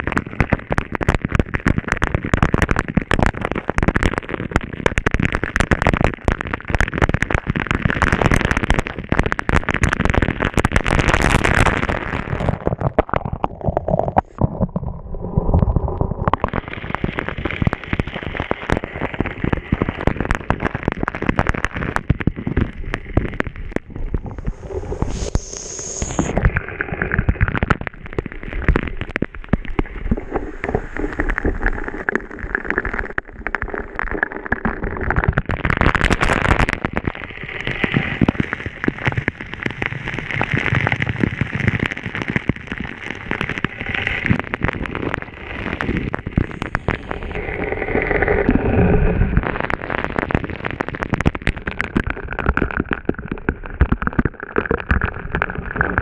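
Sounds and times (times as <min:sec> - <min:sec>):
water spattering on microphone: 0:15.5 - 0:56.0.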